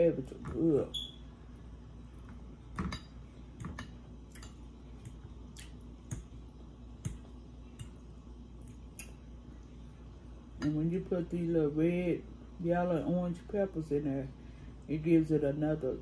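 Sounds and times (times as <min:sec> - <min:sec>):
chewing and mouth smacks: 0:04.3 - 0:06.3.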